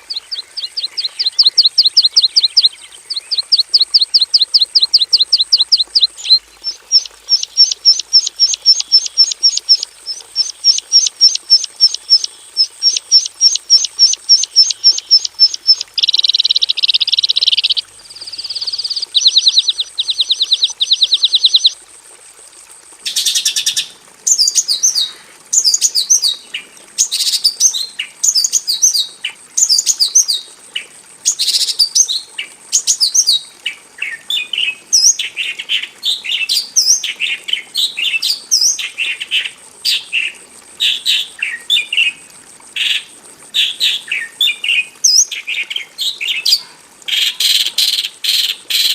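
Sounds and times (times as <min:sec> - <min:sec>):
bird singing chirps and trills: 0:00.0 - 0:21.8.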